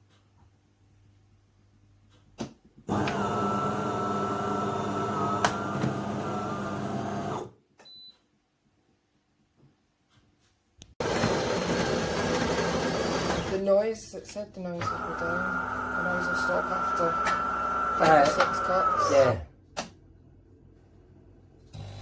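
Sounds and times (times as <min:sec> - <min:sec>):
coffee grinder running: 0:02.9 - 0:07.5, 0:11.0 - 0:13.6, 0:14.8 - 0:19.4.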